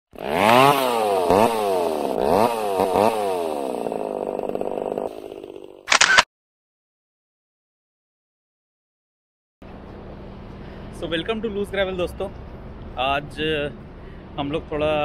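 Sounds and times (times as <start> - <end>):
motorbike engine revving: 0.1 - 5.8.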